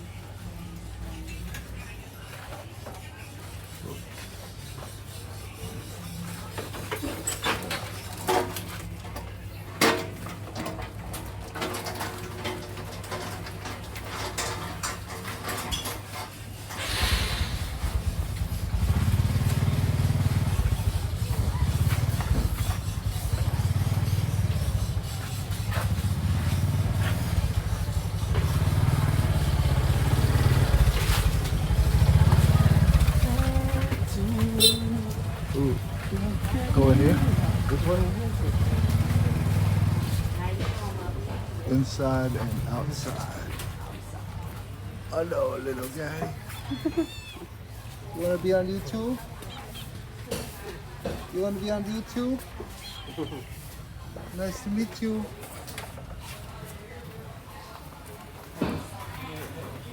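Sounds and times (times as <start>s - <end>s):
vehicle engines: 5.4s - 59.9s
heavy low rumble: 16.8s - 21.5s.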